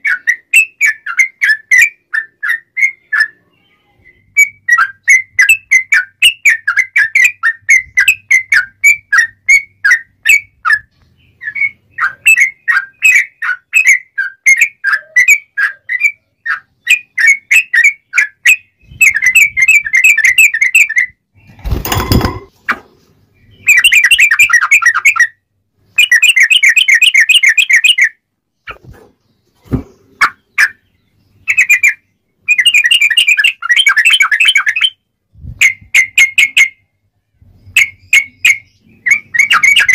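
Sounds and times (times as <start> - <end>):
bulbul singing: 37.7 - 39.9.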